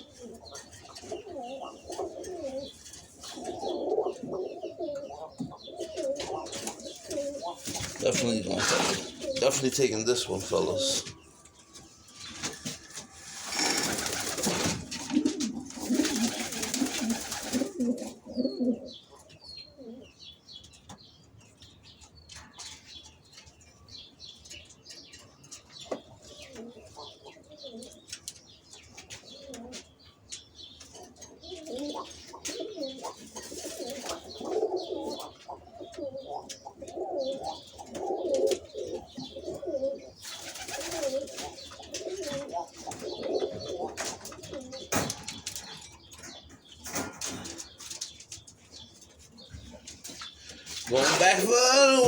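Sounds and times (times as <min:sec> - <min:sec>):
pigeons cooing: 0:00.0 - 0:21.2, 0:25.8 - 0:52.0
wings flapping: 0:12.2 - 0:17.9, 0:40.2 - 0:41.5.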